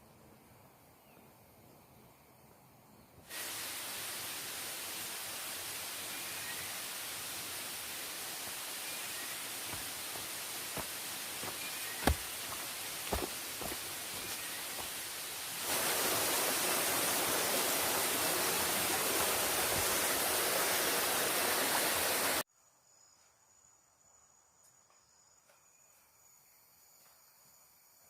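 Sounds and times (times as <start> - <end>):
forest stream water rushing: 3.3 - 22.4
high buzz of insects: 5.7 - 24.4.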